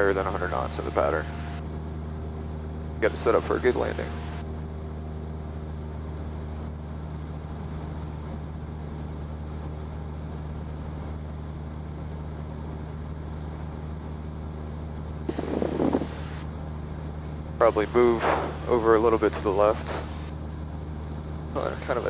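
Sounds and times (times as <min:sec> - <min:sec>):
propeller plane engine droning: 0:00.0 - 0:22.0
short noisy burst: 0:15.3 - 0:16.4, 0:18.1 - 0:18.8.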